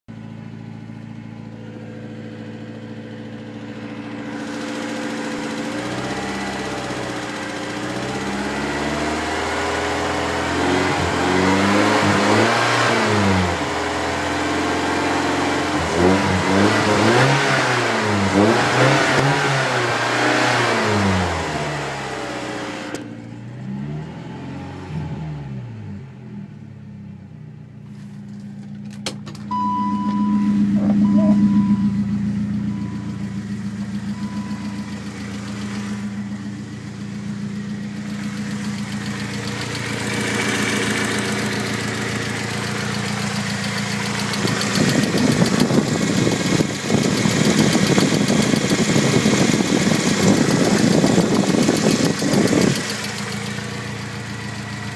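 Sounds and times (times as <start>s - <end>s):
car engine idling and revving: 0.0s - 54.9s
engine ticking: 0.1s - 12.8s, 28.4s - 54.9s.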